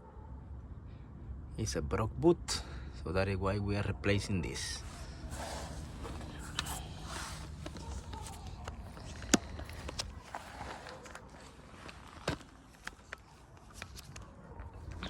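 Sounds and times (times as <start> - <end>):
low steady hum: 4.4 - 13.1.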